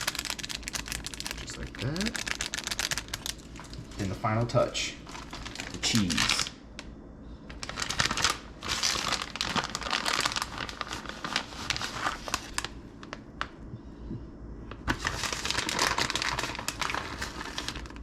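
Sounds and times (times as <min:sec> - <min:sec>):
plastic bag crinkling: 0:00.0 - 0:04.2, 0:04.9 - 0:06.6, 0:07.5 - 0:13.5, 0:14.7 - 0:18.0.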